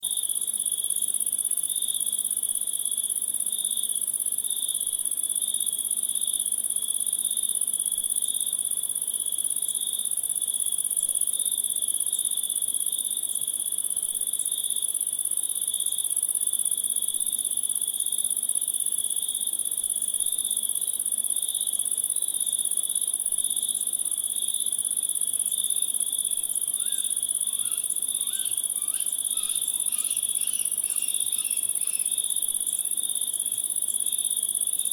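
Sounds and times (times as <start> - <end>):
pulsing cricket chirp: 20.2 - 34.9
faint short insect calls: 25.0 - 34.9
insects trilling: 25.0 - 34.9.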